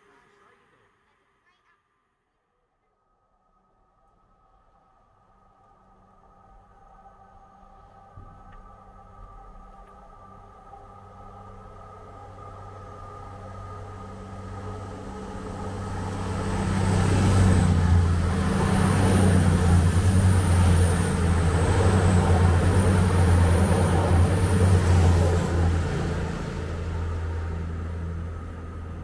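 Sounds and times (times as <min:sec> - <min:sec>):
diesel train engine drone: 0:04.6 - 0:29.0
wheels on rail: 0:06.7 - 0:29.0.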